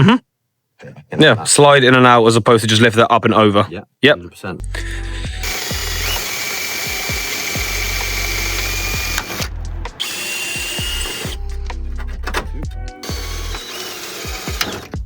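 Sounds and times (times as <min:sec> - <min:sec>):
background music with a beat: 0:04.6 - 0:15.0
power drill whining: 0:05.1 - 0:11.4, 0:13.0 - 0:15.0.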